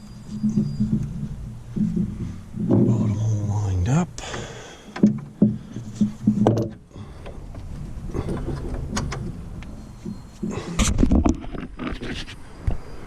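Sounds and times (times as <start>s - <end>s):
metal parts knocking and clanking: 4.3s - 11.8s.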